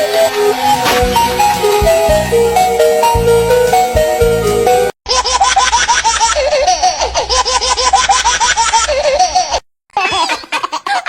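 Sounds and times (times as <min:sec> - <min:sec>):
baby laughing: 0:05.1 - 0:11.0.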